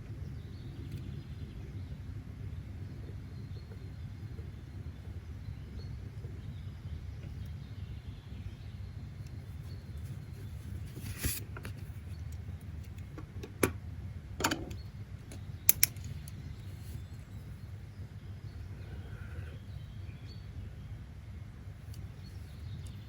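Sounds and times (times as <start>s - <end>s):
sharp clicks: 14.7s - 16.4s.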